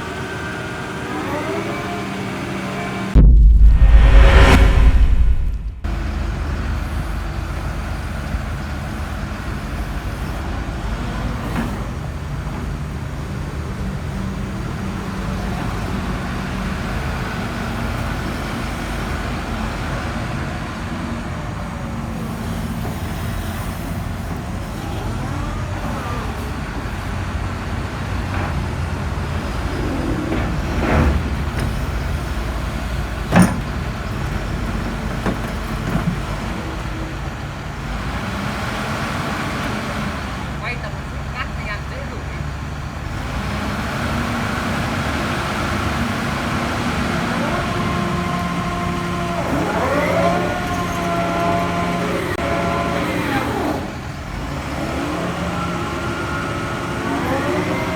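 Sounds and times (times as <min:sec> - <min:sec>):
sharp knock: 0:03.2 - 0:05.9.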